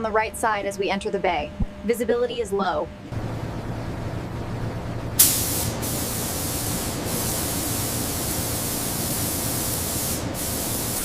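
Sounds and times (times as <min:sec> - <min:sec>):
low machine hum: 0:00.0 - 0:11.0
paint spray gun hissing: 0:05.2 - 0:11.0.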